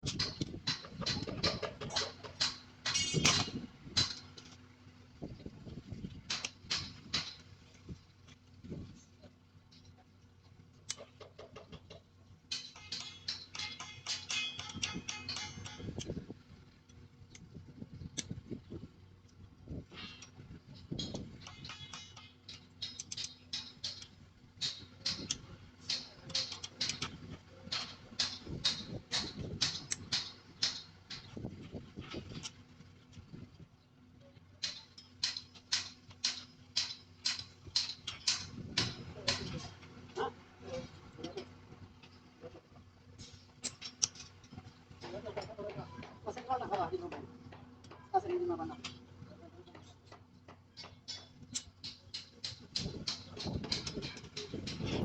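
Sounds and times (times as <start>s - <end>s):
clicks and scrapes on rebar: 10.8s - 16.2s, 19.9s - 33.3s, 34.6s - 39.9s, 43.2s - 46.5s, 49.8s - 55.0s.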